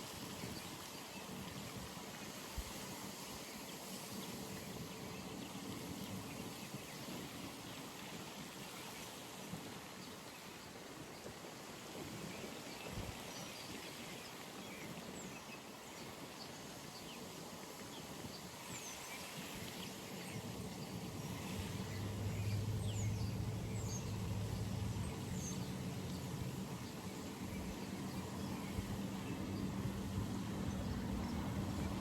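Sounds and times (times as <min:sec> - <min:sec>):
distant engine drone: 0:21.5 - 0:32.0.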